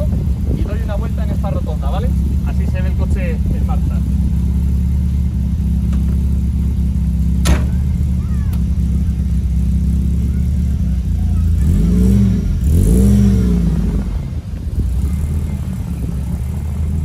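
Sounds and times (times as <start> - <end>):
car engine idling: 0.0 - 17.0
engine revving: 0.0 - 17.0
car door slamming: 5.8 - 6.4, 7.4 - 8.6.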